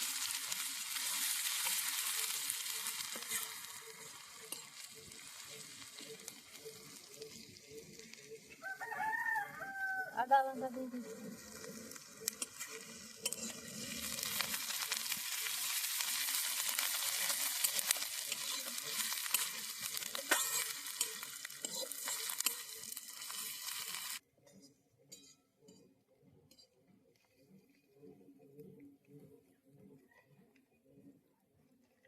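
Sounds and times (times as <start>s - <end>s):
paste sizzling in hot oil: 0.0s - 8.6s, 10.5s - 24.2s.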